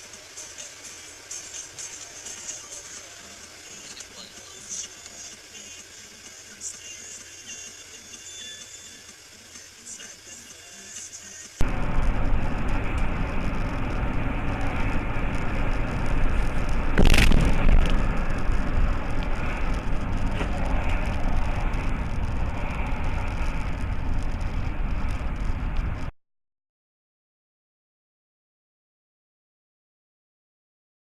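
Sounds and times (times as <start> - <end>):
car road and engine rumble: 0.0 - 26.1
collision bang: 16.9 - 18.1.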